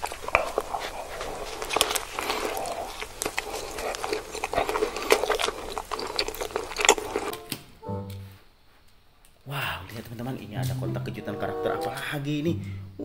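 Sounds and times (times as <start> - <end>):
hot dog being bitten and chewed: 0.0 - 7.4.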